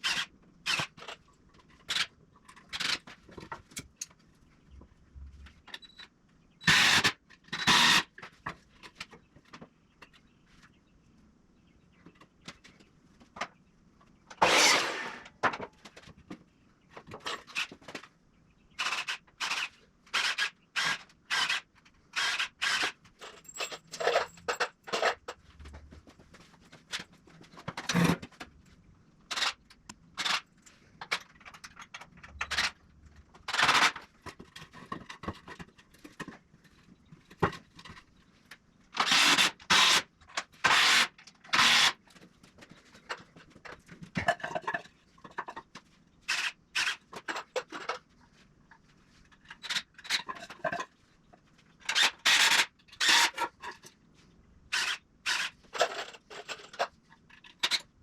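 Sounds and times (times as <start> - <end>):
wood clattering and scraping: 14.4 - 16.4.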